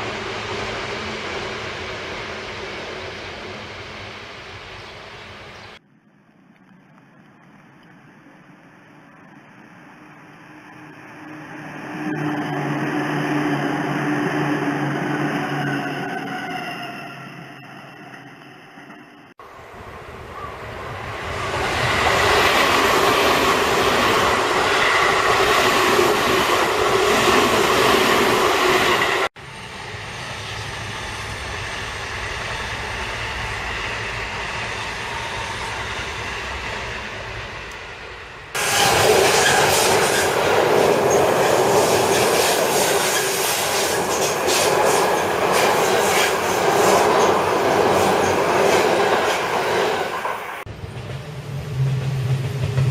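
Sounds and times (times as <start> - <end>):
electric trains passing: 0.0 - 5.8, 8.2 - 52.9
wheel squeal: 11.0 - 19.2.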